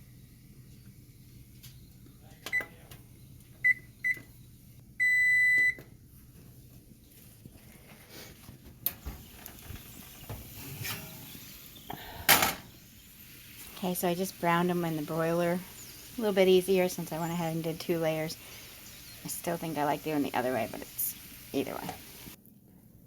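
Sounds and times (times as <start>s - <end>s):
oven control panel beeps: 2.5s - 2.8s, 3.6s - 4.3s, 5.0s - 5.9s.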